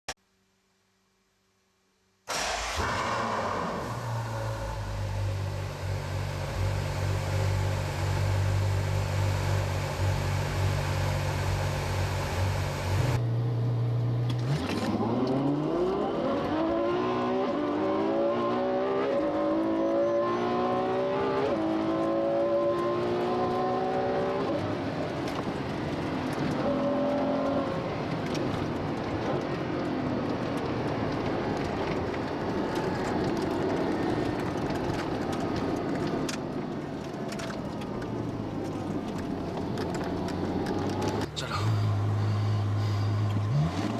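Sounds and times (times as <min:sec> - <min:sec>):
car engine accelerating through gears: 0:02.3 - 0:24.8, 0:39.6 - 0:43.9.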